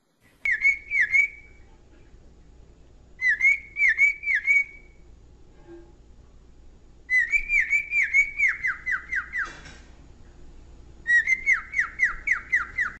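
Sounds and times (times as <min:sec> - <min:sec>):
cockatiel whistling: 0:00.4 - 0:01.6, 0:03.2 - 0:05.0, 0:07.1 - 0:09.6, 0:11.0 - 0:13.0.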